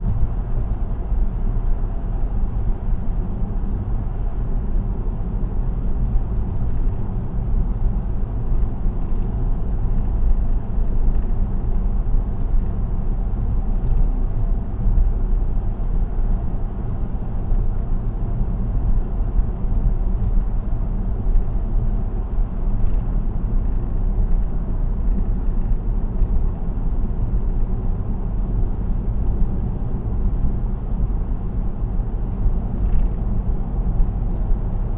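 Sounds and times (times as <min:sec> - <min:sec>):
faint small ticks: 0:00.0 - 0:00.9, 0:01.6 - 0:03.4, 0:04.1 - 0:34.9
car road noise: 0:00.0 - 0:34.9.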